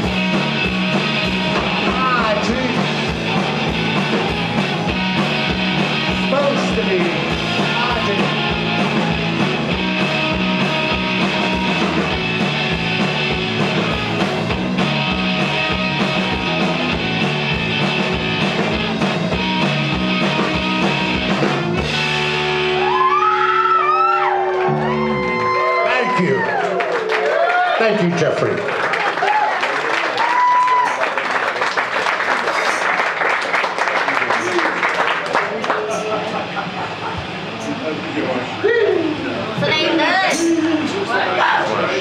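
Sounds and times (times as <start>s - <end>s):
driving drum beat: 0.0s - 23.2s
repeating bass line: 0.0s - 25.8s
guitars ringing with gliding tones: 0.0s - 25.9s, 35.8s - 39.1s.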